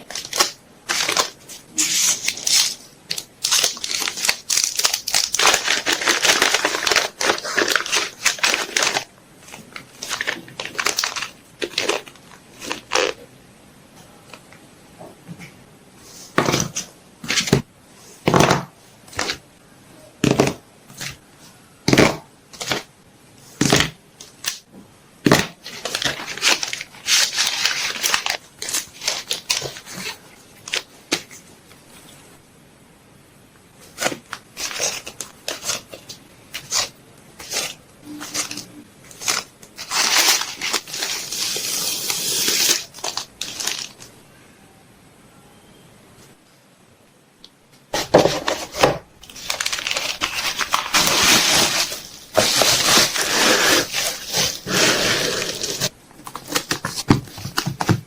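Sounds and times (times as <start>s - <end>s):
packaging crinkling and rustling: 0.0s - 13.3s, 25.3s - 31.4s, 33.8s - 44.1s, 47.9s - 58.0s.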